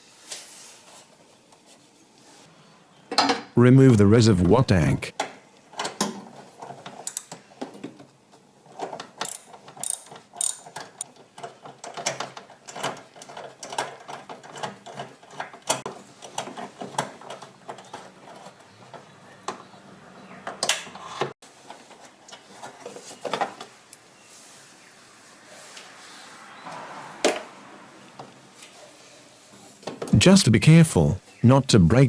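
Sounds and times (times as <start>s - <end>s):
ratchet wrench clicking: 9.2s - 11.0s.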